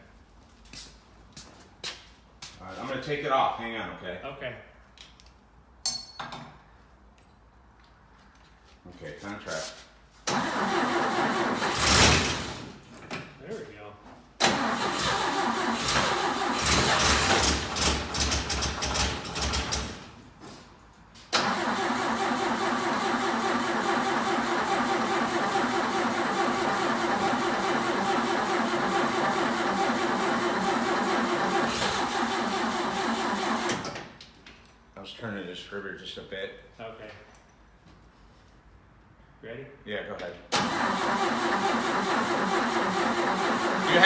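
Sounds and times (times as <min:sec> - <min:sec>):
starter cranking engine: 0:10.3 - 0:12.6, 0:14.4 - 0:20.0, 0:21.4 - 0:33.9, 0:40.6 - 0:44.0.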